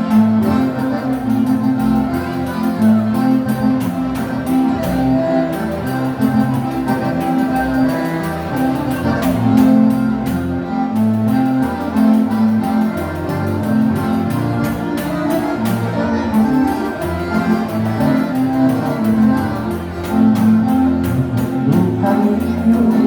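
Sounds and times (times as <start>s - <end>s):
accordion-led dance band: 0.0s - 23.0s.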